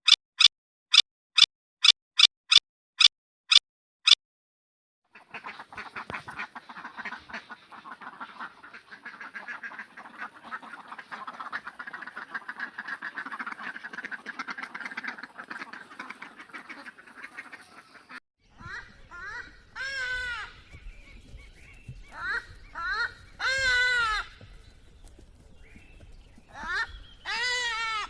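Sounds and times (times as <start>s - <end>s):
ducks quacking: 5.1s - 21.2s, 21.9s - 24.7s, 26.4s - 28.0s
sharp animal calls: 21.4s - 24.6s, 26.4s - 28.0s.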